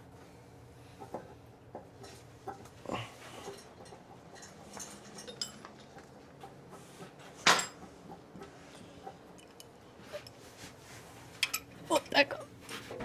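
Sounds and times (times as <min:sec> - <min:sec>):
metal tools clinking on engine parts: 0:04.4 - 0:05.7.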